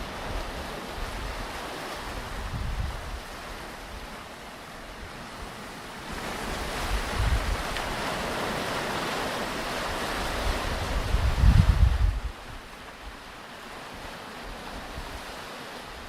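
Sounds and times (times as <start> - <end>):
wind buffeting microphone: 0.0 - 4.1, 6.2 - 13.2
waves breaking on beach: 0.0 - 16.0.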